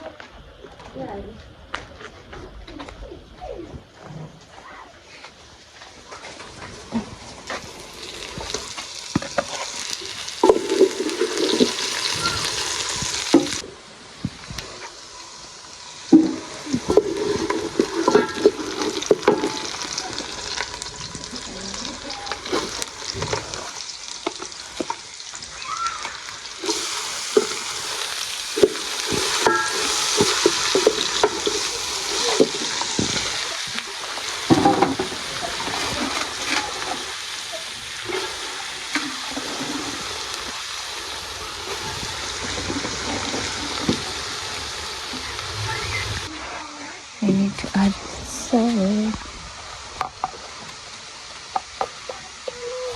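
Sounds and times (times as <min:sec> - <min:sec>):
cabbage sizzling in pan: 0:03.4 - 0:52.9
utensil knocking and scraping pan: 0:28.6 - 0:31.6.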